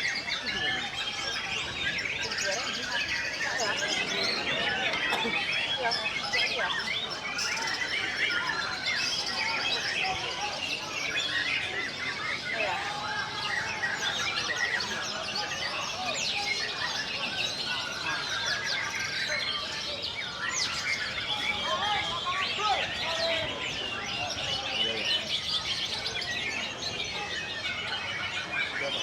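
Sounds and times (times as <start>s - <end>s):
many songbirds singing: 0.0s - 29.0s.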